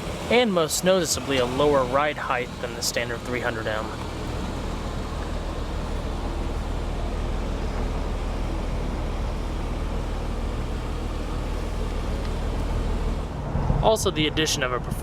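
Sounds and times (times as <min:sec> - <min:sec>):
car engine idling: 0:00.0 - 0:13.5.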